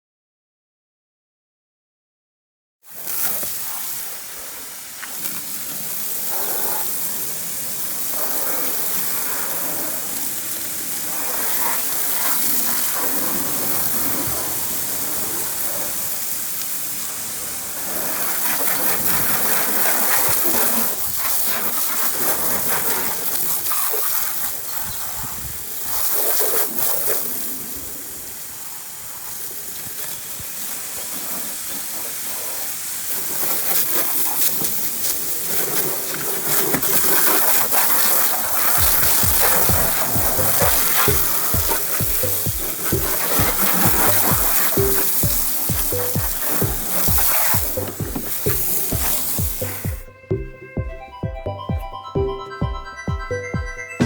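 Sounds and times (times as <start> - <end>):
hissing spray jet: 2.9 - 50.6.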